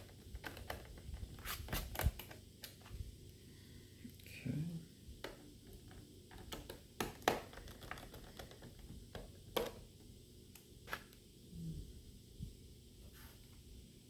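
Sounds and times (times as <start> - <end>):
small parts and tools clicking: 5.2 - 9.8.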